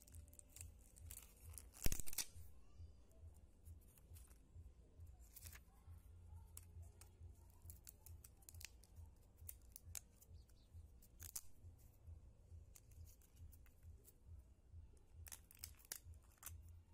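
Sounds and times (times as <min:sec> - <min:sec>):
plastic sheets clicking and crinkling: 0:00.0 - 0:02.6, 0:06.4 - 0:11.6, 0:15.2 - 0:16.7
low steady hum: 0:00.0 - 0:16.9.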